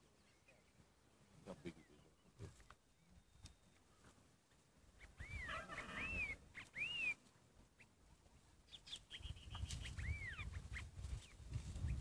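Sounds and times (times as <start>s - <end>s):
bird whistling calls: 5.0s - 7.2s, 8.7s - 12.0s.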